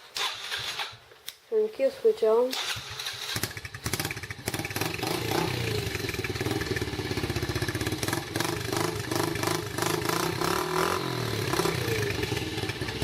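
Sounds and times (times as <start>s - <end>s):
dirt bike engine running: 2.8s - 13.0s.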